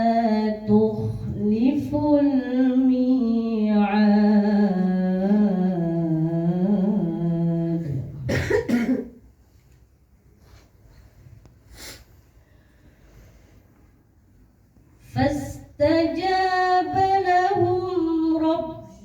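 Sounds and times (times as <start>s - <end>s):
woman reciting melodically: 0.0s - 8.8s, 15.0s - 19.0s.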